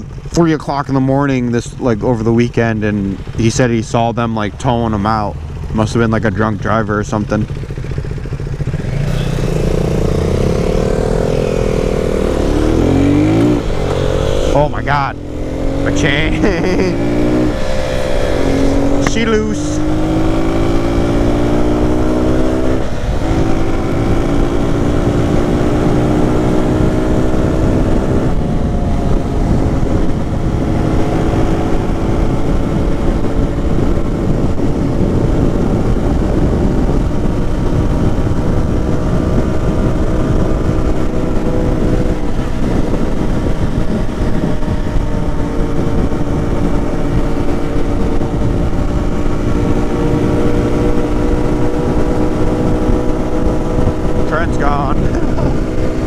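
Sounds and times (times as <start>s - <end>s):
motorcycle engine accelerating: 0.0s - 56.0s
wind noise: 0.0s - 56.0s.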